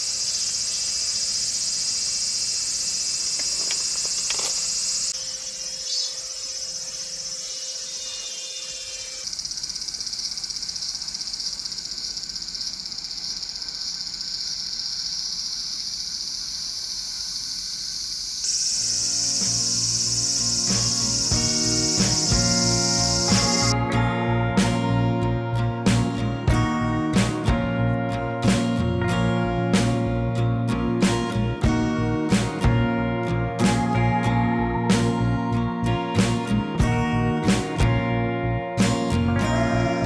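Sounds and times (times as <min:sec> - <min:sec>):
crickets and insects chirping: 0:00.0 - 0:23.8
guitar music: 0:18.8 - 0:40.0.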